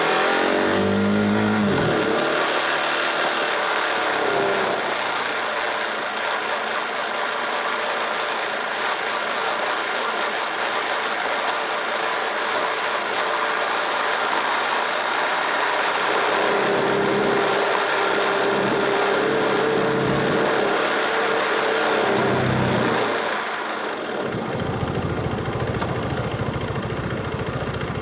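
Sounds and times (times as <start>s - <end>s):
motorcycle engine clattering: 15.8s - 28.0s.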